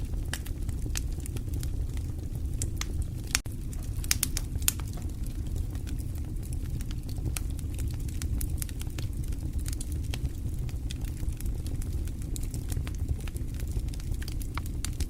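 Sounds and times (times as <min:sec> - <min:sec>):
low rumble: 0:00.0 - 0:14.9
fire crackling: 0:00.0 - 0:15.0.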